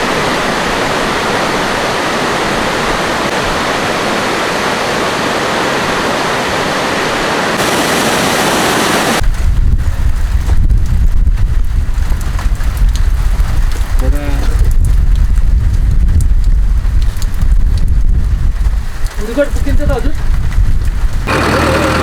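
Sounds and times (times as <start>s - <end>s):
fast-flowing water rushing: 0.0s - 9.2s
low uneven rumble: 21.2s - 22.0s.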